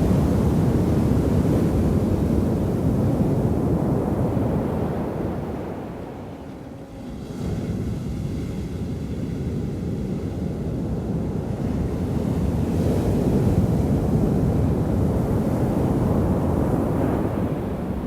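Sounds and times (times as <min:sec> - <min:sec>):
ocean waves rumbling: 0:00.0 - 0:07.2.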